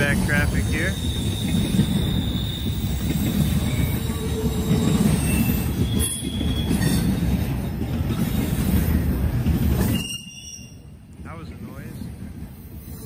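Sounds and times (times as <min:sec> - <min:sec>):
steel wheels rumbling on rail: 0:00.0 - 0:13.0
faint high wheel squeals: 0:00.5 - 0:07.3, 0:09.8 - 0:11.0.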